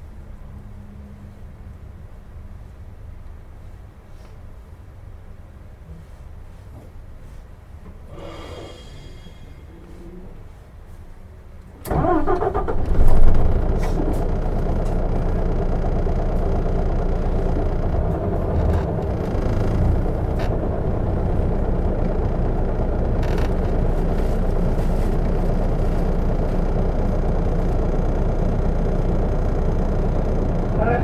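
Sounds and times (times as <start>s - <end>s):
diesel engine idling: 11.8s - 31.0s
starter motor cranking: 11.9s - 31.0s.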